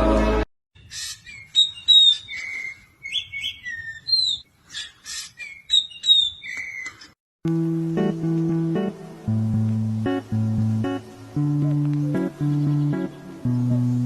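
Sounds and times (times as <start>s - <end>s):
bird chirping and whistling: 0.8s - 7.1s.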